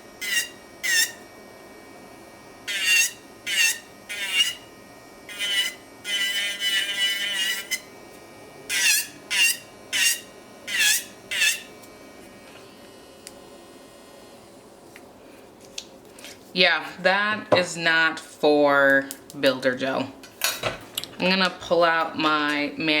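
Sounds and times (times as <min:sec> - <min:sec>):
nail drill bit squealing: 0:00.2 - 0:01.2, 0:02.7 - 0:04.6, 0:05.3 - 0:07.8.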